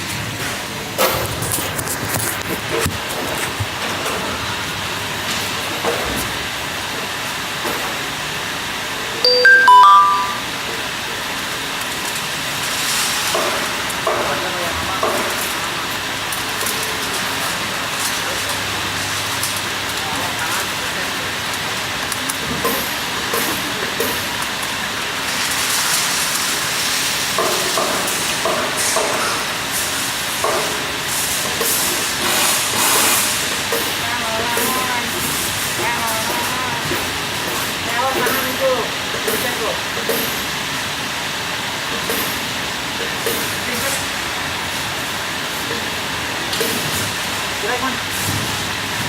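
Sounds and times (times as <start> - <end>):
background machinery noise: 0.0 - 49.0
stepped chime: 9.3 - 10.4.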